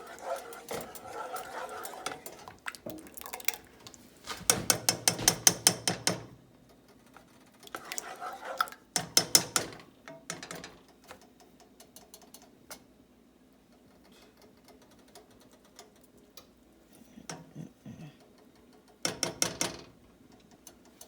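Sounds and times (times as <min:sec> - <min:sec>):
spoon scraping and clicking in pot: 0:00.0 - 0:03.9, 0:07.6 - 0:09.7.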